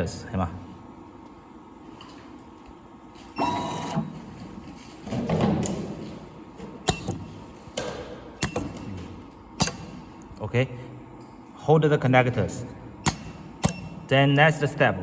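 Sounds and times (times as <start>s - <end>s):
machine mechanical whir: 3.3s - 4.2s.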